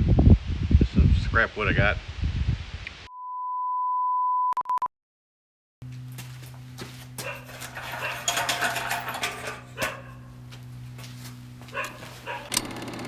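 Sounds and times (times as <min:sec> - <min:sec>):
dog barking: 0:07.2 - 0:10.4, 0:11.7 - 0:12.5.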